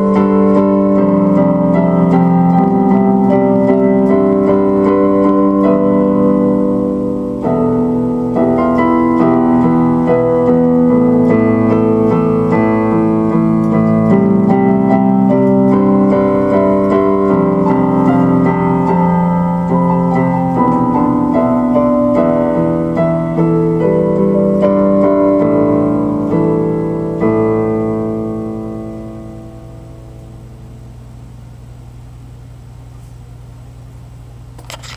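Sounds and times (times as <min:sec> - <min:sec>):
electric keyboard chords: 0:00.0 - 0:32.7.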